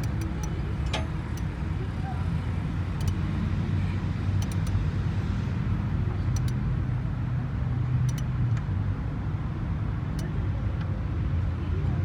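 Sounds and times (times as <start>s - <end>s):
low engine hum: 0.0s - 12.0s
metallic clicks of hand tools: 4.4s - 4.8s.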